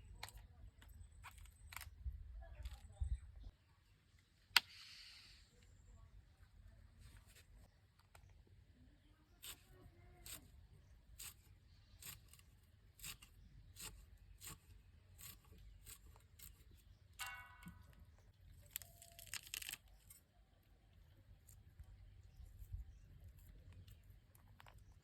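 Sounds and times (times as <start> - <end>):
tearing rasp: 9.4 - 10.6, 11.2 - 17.8.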